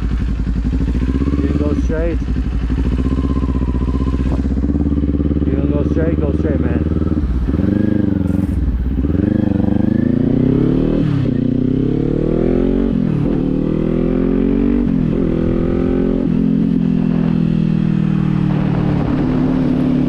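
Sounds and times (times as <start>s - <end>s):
motorcycle engine accelerating: 0.0s - 20.0s
wind noise on microphone: 14.8s - 20.0s.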